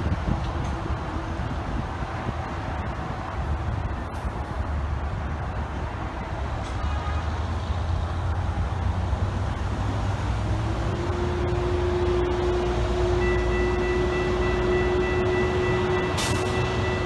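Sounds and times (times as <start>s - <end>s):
road traffic rumble: 0.0s - 17.0s
distant train approaching: 8.0s - 17.0s
train whine: 8.5s - 17.0s.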